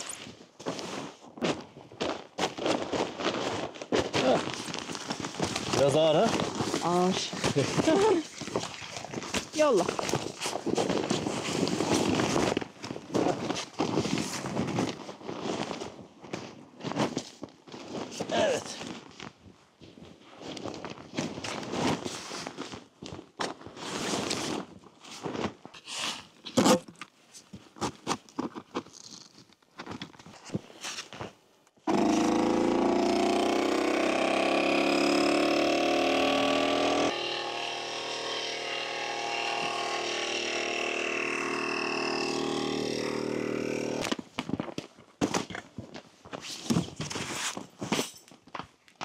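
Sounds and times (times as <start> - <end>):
electric air pump running: 31.9 - 44.1.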